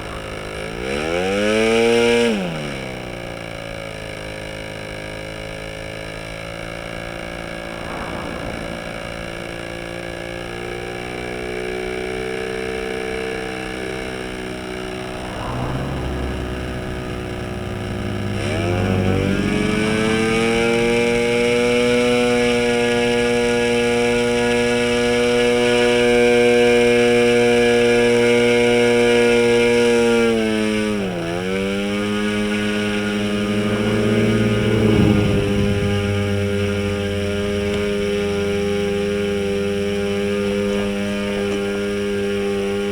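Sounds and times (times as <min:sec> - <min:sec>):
model engine running with propeller: 0:11.1 - 0:42.9.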